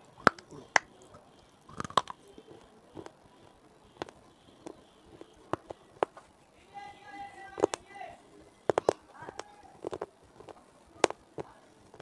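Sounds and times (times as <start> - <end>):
chewing brittle food crunches: 0.1 - 6.2, 8.6 - 12.0.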